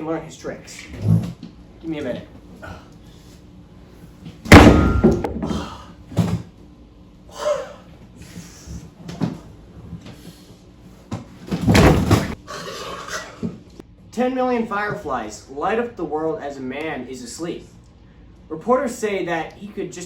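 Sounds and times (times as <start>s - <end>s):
heavy thumps and bangs: 4.5s - 5.6s, 11.5s - 12.4s.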